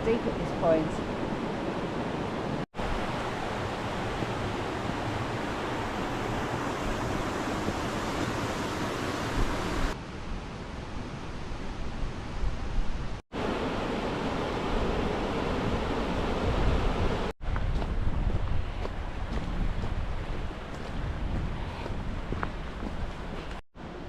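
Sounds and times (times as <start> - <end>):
river water rushing: 1.0 - 10.0, 13.4 - 17.3.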